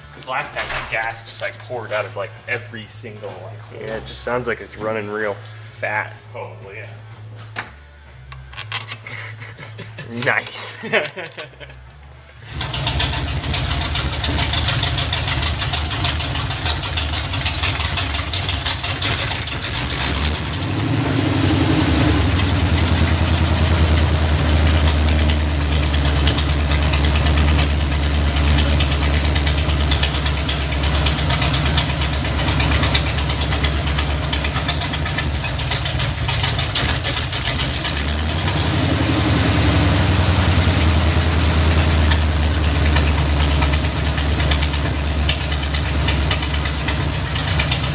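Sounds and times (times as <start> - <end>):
car engine running: 9.9 - 47.9.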